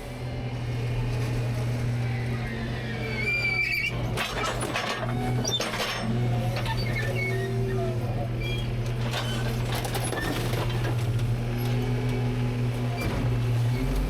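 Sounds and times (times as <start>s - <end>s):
garbage truck engine and hydraulics: 0.0s - 14.0s
brief squeal: 2.1s - 8.7s
trash cracking and clattering: 3.8s - 7.6s, 8.7s - 14.0s.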